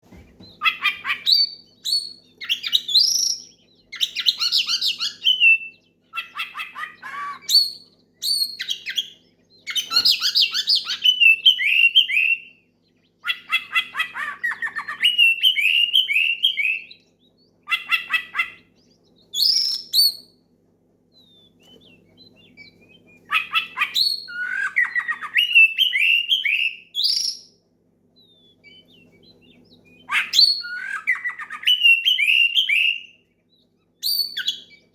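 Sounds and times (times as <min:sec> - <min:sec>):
faint steady hum: 0:00.0 - 0:34.9
bird singing loud song: 0:00.3 - 0:20.5, 0:21.1 - 0:34.9.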